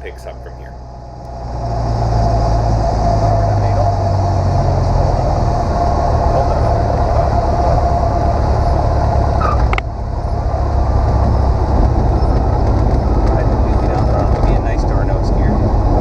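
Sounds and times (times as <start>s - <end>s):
aircraft engine and propeller droning: 0.0s - 16.0s.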